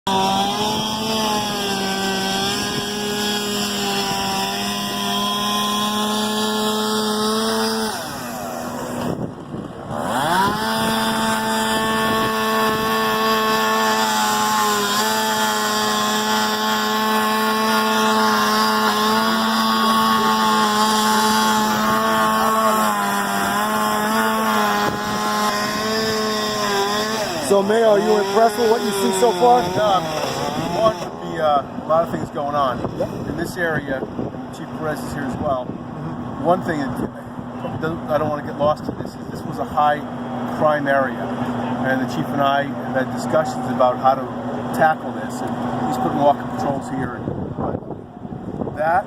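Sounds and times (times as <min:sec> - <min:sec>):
motor-driven machine running: 0:00.1 - 0:33.8.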